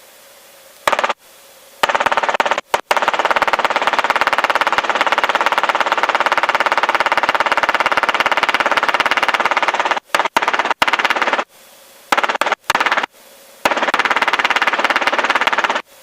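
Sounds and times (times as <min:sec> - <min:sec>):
helicopter rotor pulsing: 0:01.8 - 0:11.5, 0:12.1 - 0:13.1, 0:13.7 - 0:15.8.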